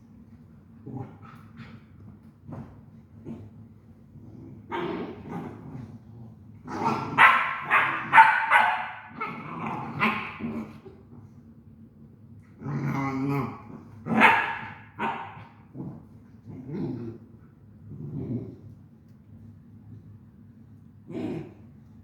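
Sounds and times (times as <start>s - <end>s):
dog growling: 3.2s - 8.2s, 9.1s - 11.0s, 12.6s - 14.3s, 15.3s - 18.8s, 21.1s - 21.7s
dogs barking: 7.2s - 10.4s, 14.1s - 15.4s.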